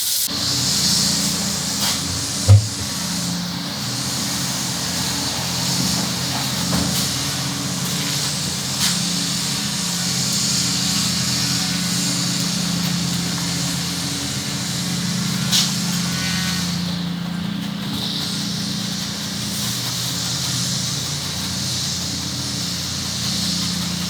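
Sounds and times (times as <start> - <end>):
running water spraying: 0.0 - 24.0
brief knocks: 2.5 - 3.0.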